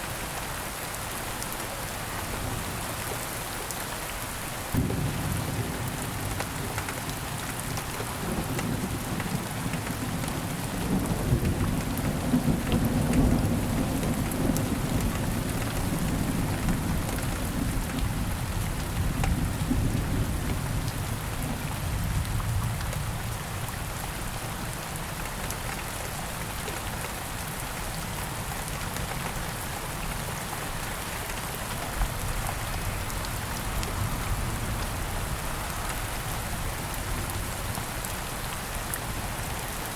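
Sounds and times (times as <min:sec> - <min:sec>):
steady rain falling: 0:00.0 - 0:39.9
low rumble of thunder: 0:04.8 - 0:23.8.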